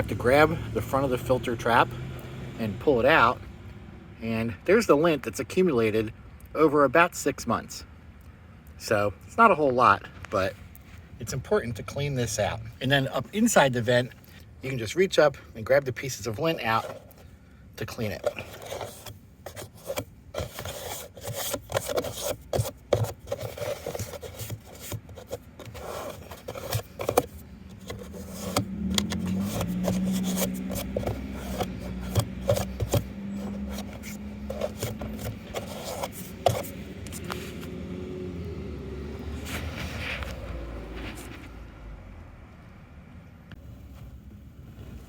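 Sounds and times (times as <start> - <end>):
hands scraping plastic vent hood: 18.0 - 37.7.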